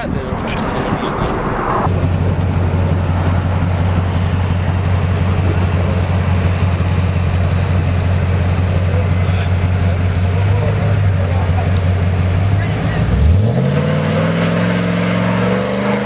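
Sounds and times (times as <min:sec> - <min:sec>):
diesel truck engine idling: 0:01.9 - 0:13.5.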